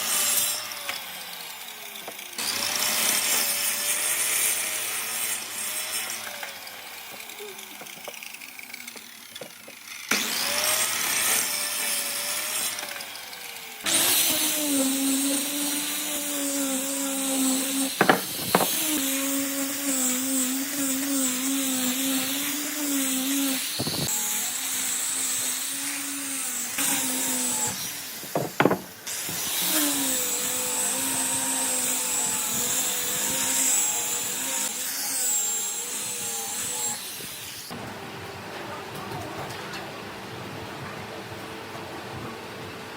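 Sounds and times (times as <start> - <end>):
power tool motor hum: 0.0 - 36.8
sharp knocks: 18.0 - 18.8, 28.3 - 29.0.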